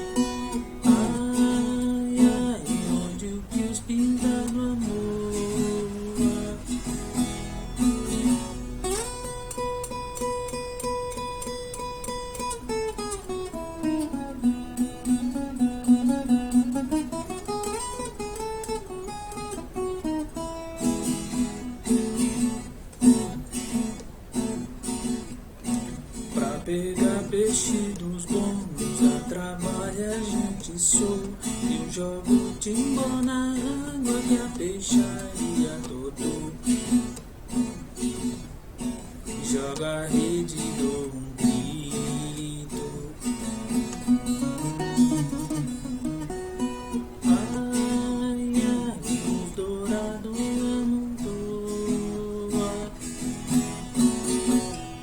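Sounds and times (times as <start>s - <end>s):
acoustic guitar playing: 0.0s - 55.0s.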